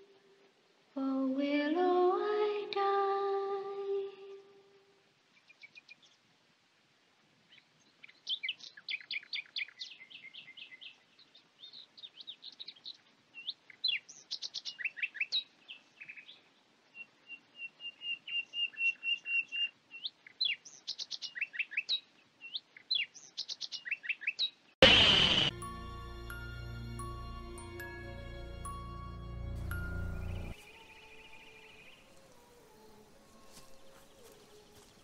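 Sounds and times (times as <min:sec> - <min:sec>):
birds singing: 0:07.5 - 0:24.6, 0:30.2 - 0:35.0.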